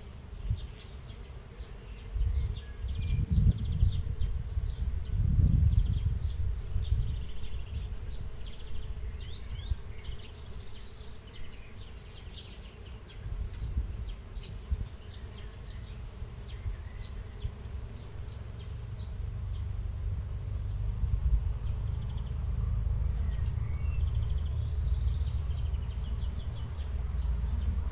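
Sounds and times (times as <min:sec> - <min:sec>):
small birds chirping: 0:00.4 - 0:19.8, 0:21.6 - 0:27.9
low steady rumble: 0:18.6 - 0:27.9.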